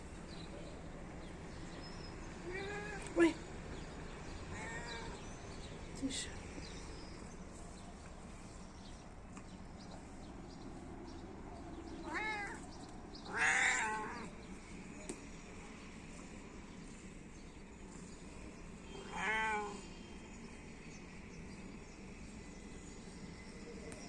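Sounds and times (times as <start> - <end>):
cat meowing: 2.4 - 3.1, 4.5 - 5.3, 12.0 - 12.7, 13.3 - 14.3, 19.0 - 19.8.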